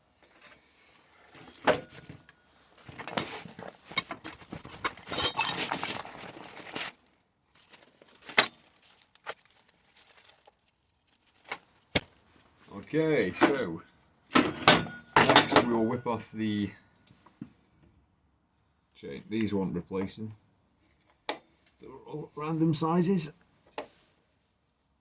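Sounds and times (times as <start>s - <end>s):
metal parts clinking: 1.5s - 6.8s.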